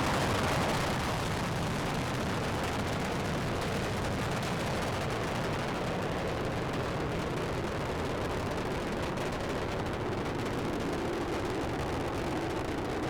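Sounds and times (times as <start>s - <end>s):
rocket engines crackling rumble: 0.0s - 13.0s.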